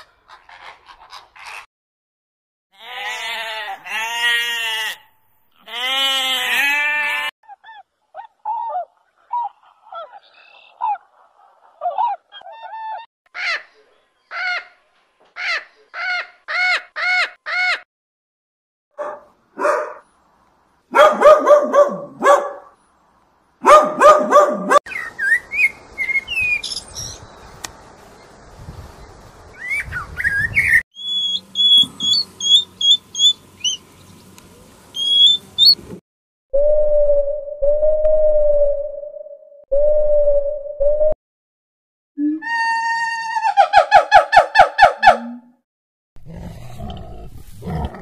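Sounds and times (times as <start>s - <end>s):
repeated bird calls: 29.6s - 35.8s.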